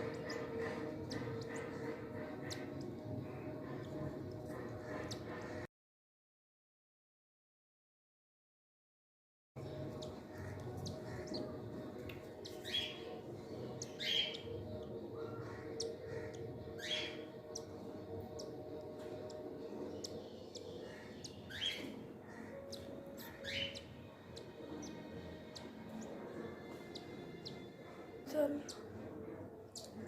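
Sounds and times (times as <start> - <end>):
steady low hum: 0.0 - 5.6
cockatiel chirping: 22.6 - 26.1.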